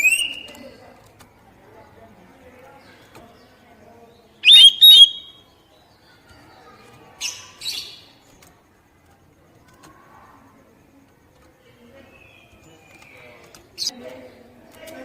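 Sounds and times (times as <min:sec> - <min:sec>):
bird whistled notes: 0:04.4 - 0:05.4
harsh rasping bird calls: 0:04.4 - 0:05.4.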